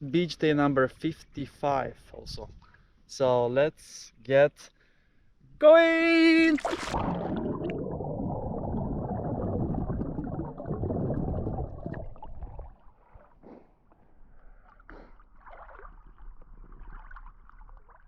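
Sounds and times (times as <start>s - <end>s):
swimming stroke splashes: 6.6s - 7.6s
muffled water churning: 6.6s - 13.4s.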